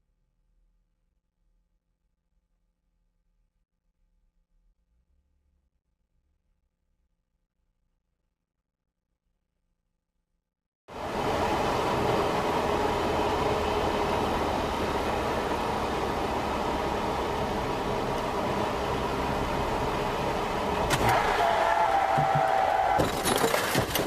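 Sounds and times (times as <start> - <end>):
vehicle road and engine noise: 10.9 - 24.0.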